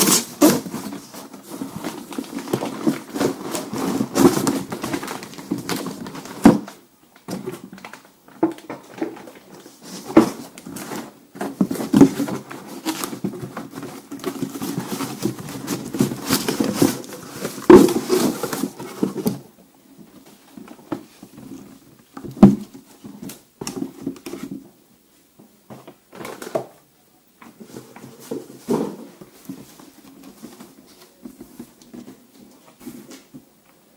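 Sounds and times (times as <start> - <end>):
packaging rustling: 0.0 - 19.4.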